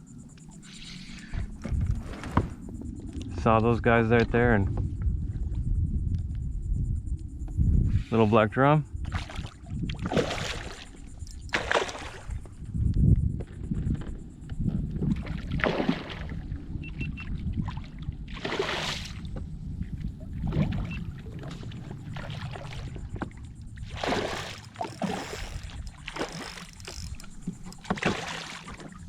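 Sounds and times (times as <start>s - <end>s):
wind rumble on microphone: 0.0s - 29.0s
water splashing against kayak hull: 9.0s - 12.6s, 13.4s - 29.0s.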